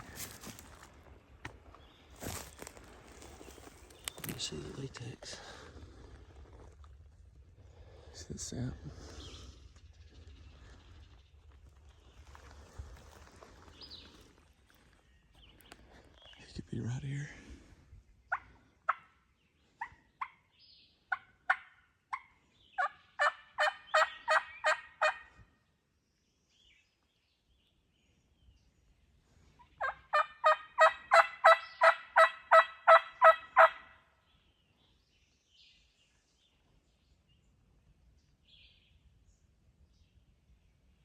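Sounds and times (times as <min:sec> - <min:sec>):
turkey yelping: 0:21.1 - 0:25.2, 0:29.8 - 0:33.9.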